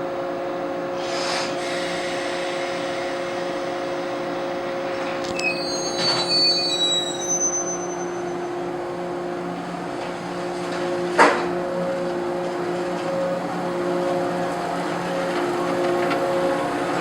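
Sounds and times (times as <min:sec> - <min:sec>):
electric railcar humming: 0:00.0 - 0:17.0
high-pitched squeals: 0:01.0 - 0:09.8.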